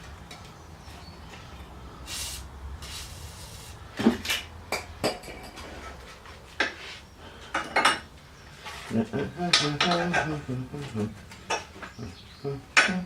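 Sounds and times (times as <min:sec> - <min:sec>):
short hisses: 0:02.0 - 0:03.8.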